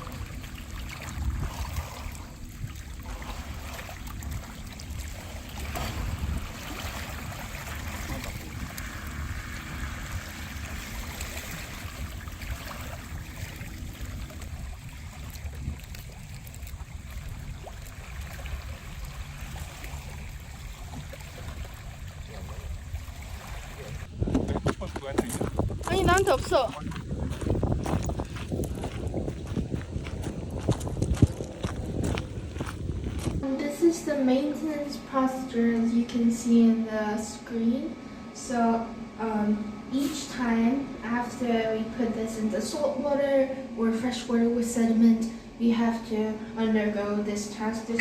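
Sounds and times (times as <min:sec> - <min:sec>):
sea water sloshing and lapping: 0:00.0 - 0:24.2, 0:24.8 - 0:33.5
steady low rumble: 0:00.0 - 0:48.0.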